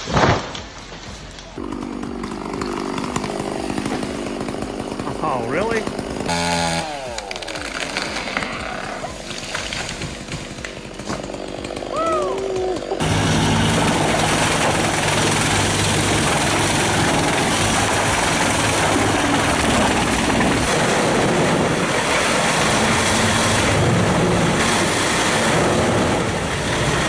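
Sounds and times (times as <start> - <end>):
large engine running: 1.6 - 27.0
loud rushing noise: 13.0 - 27.0.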